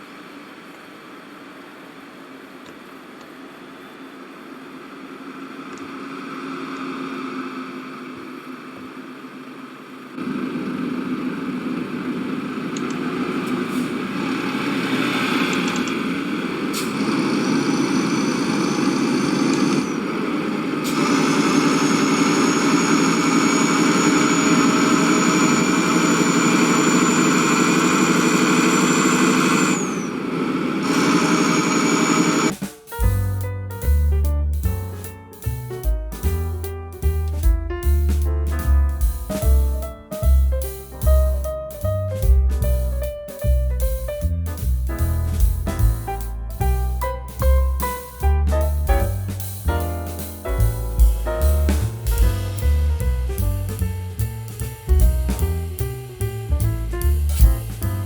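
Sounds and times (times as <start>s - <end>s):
engine running: 5.1s - 58.0s
rushing noise: 12.4s - 33.2s, 45.2s - 53.9s
thin high whine: 13.6s - 33.0s.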